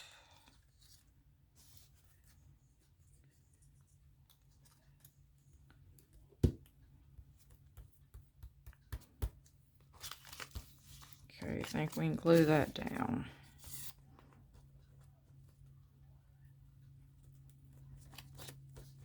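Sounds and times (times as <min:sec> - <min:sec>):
low steady hum: 0:00.0 - 0:19.0
paper cutouts being shuffled: 0:09.8 - 0:13.9.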